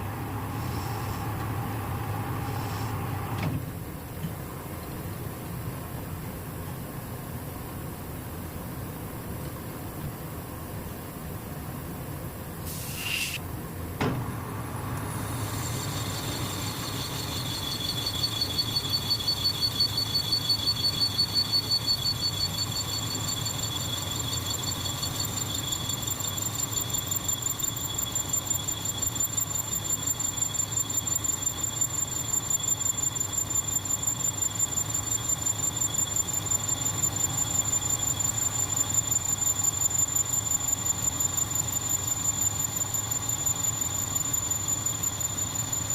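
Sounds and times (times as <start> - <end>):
lathe cutting tool squealing: 15.0 - 45.9.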